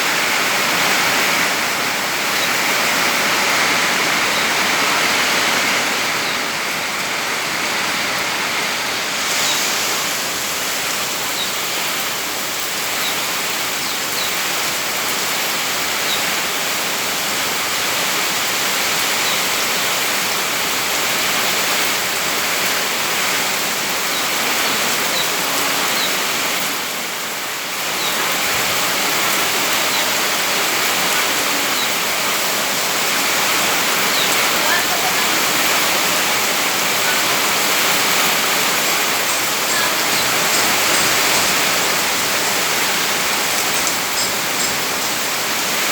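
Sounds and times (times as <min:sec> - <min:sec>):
heavy rain in strong wind: 0:00.0 - 0:45.9
rain drop ticks: 0:38.7 - 0:45.9.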